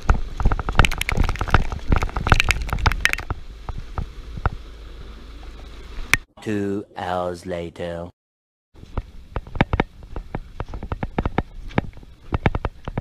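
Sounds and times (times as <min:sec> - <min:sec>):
steady low rumble: 0:00.0 - 0:06.2
crackling clatter of taps: 0:00.5 - 0:03.3.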